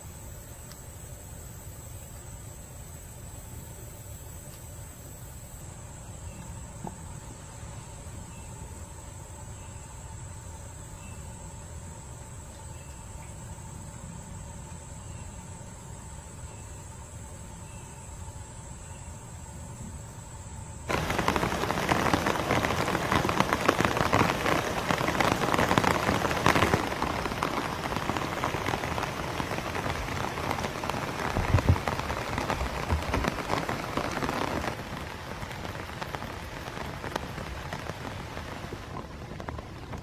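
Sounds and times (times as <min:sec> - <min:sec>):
heavy rain on leaves: 0:00.0 - 0:08.2, 0:20.8 - 0:40.0.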